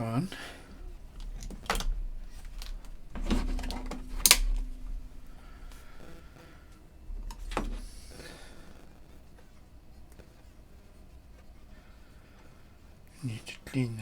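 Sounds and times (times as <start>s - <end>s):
tools clicking and knocking on workbench: 0.7s - 5.9s.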